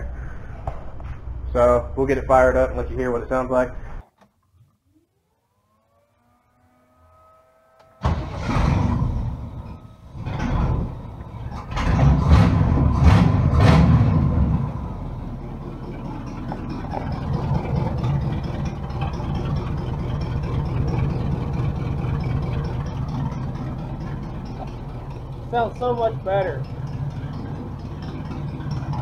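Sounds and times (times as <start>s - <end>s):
faint rising whine: 0.0s - 11.8s
truck engine revving and idling: 5.7s - 29.0s.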